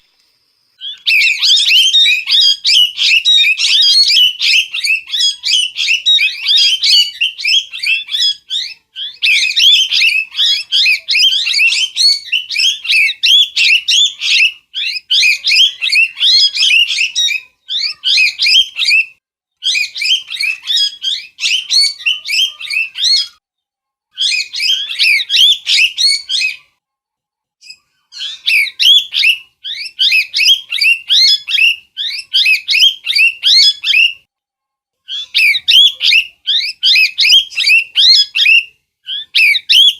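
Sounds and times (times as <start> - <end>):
parrot chirping and squawking: 0.8 - 19.0, 19.6 - 23.4, 24.2 - 26.6, 27.6 - 34.2, 35.1 - 39.9.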